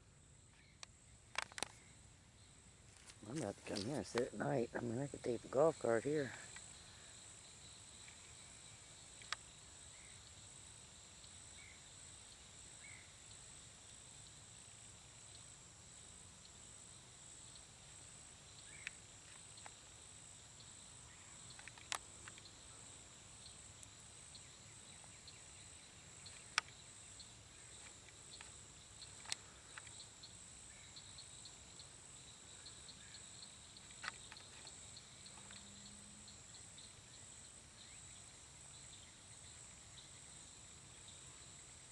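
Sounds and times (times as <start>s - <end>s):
insect chorus: 0.0s - 41.9s
sharp clicks: 29.1s - 30.0s.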